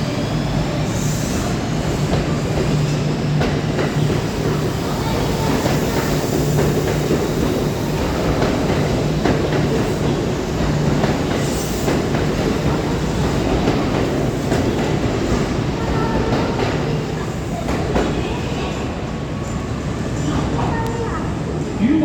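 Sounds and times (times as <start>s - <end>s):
train rumble and hum: 0.0s - 22.0s
train wheels clacking: 0.7s - 19.6s.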